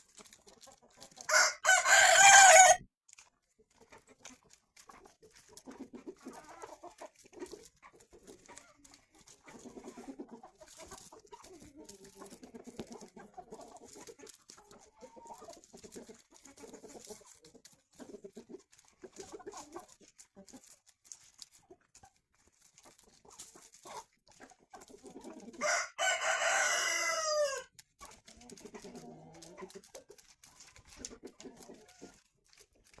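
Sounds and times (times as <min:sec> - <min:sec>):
chickens clucking: 0:00.0 - 0:33.0
rooster crowing: 0:01.3 - 0:02.8, 0:25.6 - 0:27.7.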